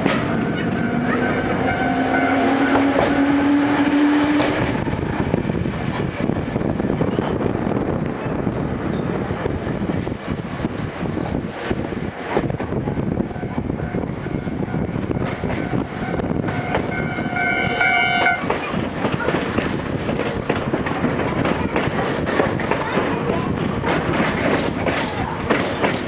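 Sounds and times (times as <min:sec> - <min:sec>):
train rumble from inside: 0:00.0 - 0:26.0
wheels clicking over rail joints: 0:16.4 - 0:26.0.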